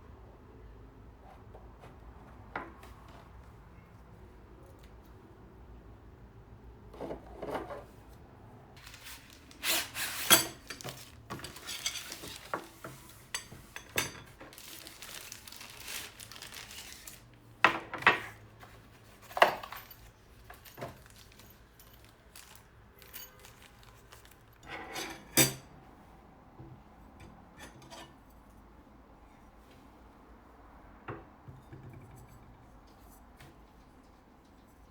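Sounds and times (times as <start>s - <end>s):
rustling and rubbing: 8.8s - 13.8s, 14.4s - 17.4s.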